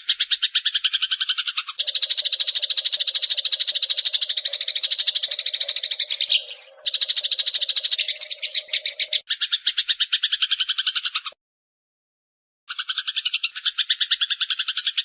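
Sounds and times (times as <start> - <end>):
sparrow chattering chirps: 0.0 - 11.4, 12.7 - 15.0.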